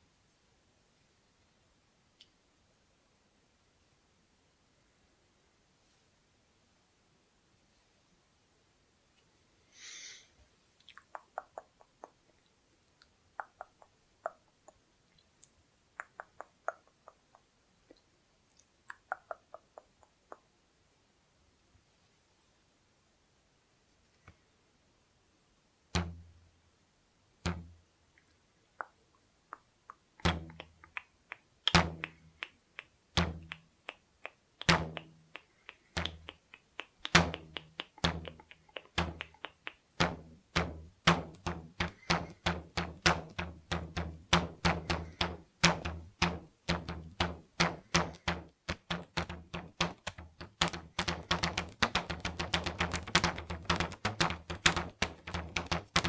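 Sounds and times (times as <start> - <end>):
rubber bands twanging: 26.0 - 26.5, 27.4 - 27.8, 30.2 - 30.8, 31.7 - 32.5, 33.2 - 33.6, 34.6 - 56.0.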